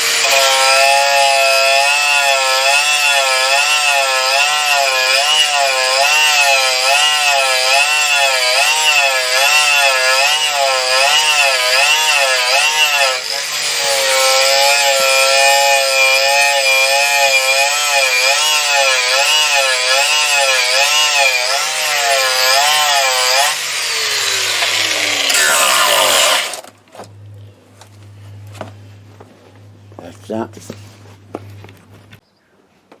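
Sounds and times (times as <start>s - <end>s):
power tool motor under load: 20.1s - 26.7s.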